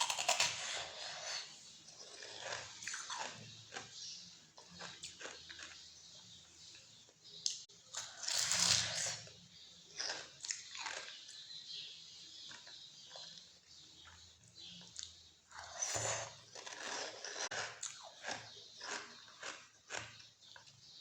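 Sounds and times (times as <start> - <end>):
person chewing crunchy food: 0.0 - 4.0, 4.6 - 5.9, 9.9 - 11.4, 14.8 - 20.8.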